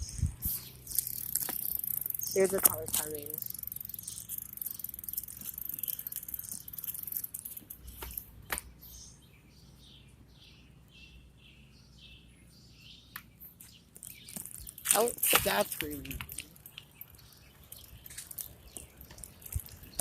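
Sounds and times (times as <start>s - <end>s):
songbird chirping: 0.0s - 20.0s
sharp clicks: 0.4s - 8.7s.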